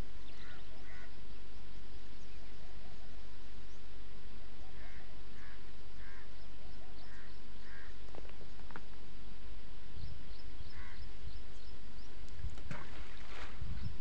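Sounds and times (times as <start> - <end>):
bird calling: 0.0 - 1.4, 4.6 - 8.8, 10.0 - 14.0.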